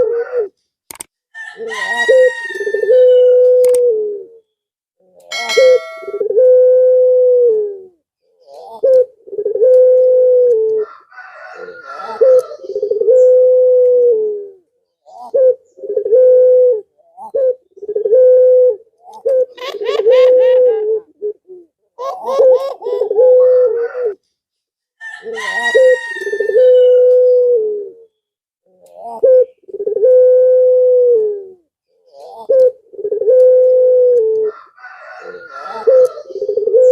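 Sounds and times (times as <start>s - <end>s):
dove cooing: 0.0s - 0.6s, 1.4s - 4.4s, 5.2s - 24.2s, 25.1s - 36.9s
higher call falling in pitch: 5.3s - 6.3s.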